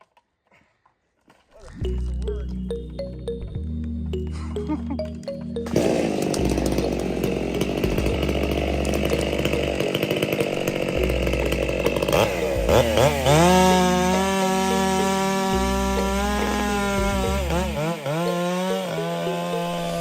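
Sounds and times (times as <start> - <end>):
chainsaw cutting wood: 5.6 - 20.0.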